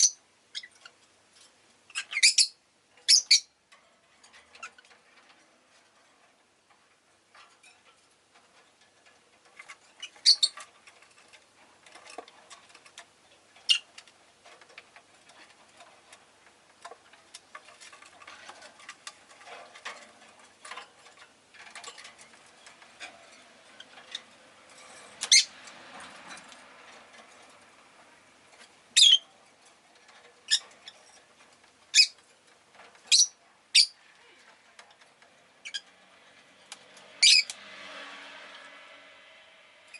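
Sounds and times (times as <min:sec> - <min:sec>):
lovebirds chirping: 0:00.0 - 0:00.8, 0:01.9 - 0:03.6, 0:10.0 - 0:10.6, 0:28.9 - 0:29.3, 0:31.9 - 0:32.2, 0:33.1 - 0:34.0, 0:37.2 - 0:37.5
faint clicking and rustling: 0:00.5 - 0:02.1, 0:02.8 - 0:39.9.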